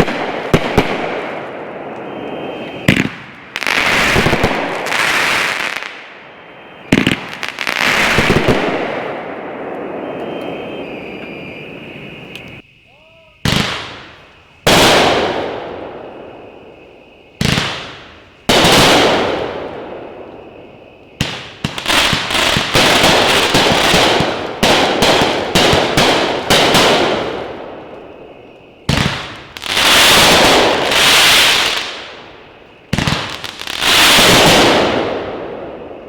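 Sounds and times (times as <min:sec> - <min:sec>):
firework booms: 0:00.0 - 0:12.6, 0:13.4 - 0:36.0.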